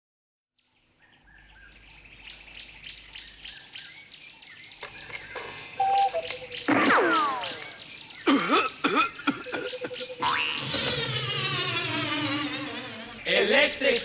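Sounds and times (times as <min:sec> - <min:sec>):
birds chirping: 0:00.6 - 0:14.0
brief steady tone: 0:05.8 - 0:06.4.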